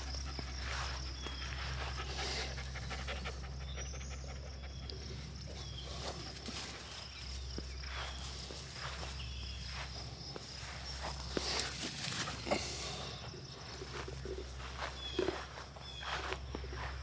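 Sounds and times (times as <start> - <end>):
footsteps on a path: 5.7 - 17.0.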